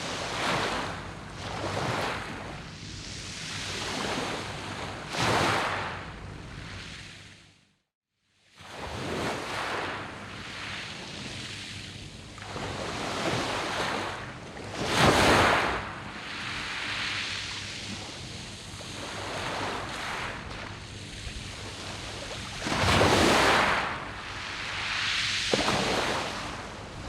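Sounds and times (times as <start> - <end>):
waves breaking on pebble beach: 21.3 - 27.0.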